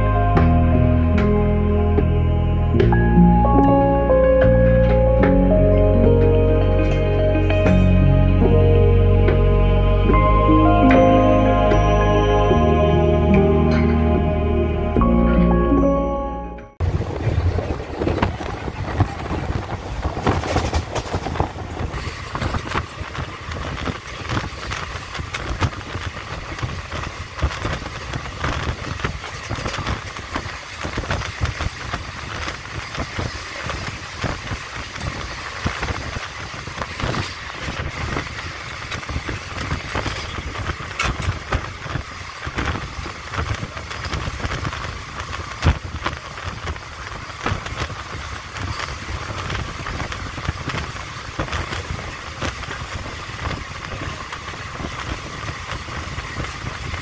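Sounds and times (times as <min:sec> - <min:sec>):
train coach rumbling: 0:00.0 - 0:57.0
wheels clicking on rails: 0:16.8 - 0:57.0.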